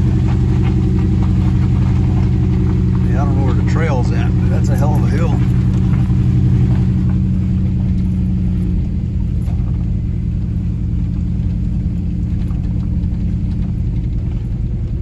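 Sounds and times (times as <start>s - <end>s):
truck engine pulling uphill: 0.0s - 15.0s.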